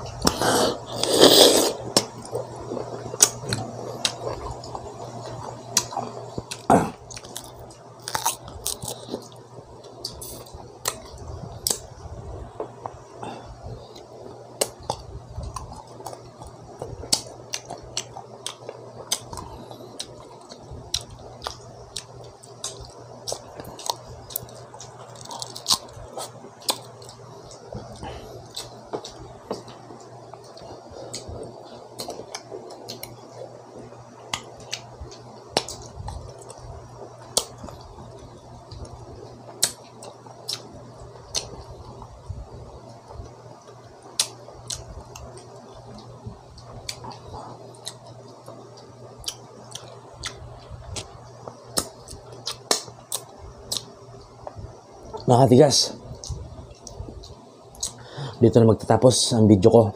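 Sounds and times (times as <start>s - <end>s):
mango being bitten and chewed: 37.2s - 42.0s, 44.0s - 54.3s.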